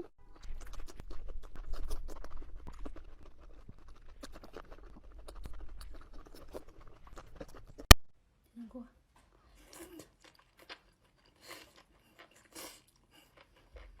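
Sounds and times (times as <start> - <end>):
chewing and crunching food: 0.0 - 8.0, 9.2 - 14.0.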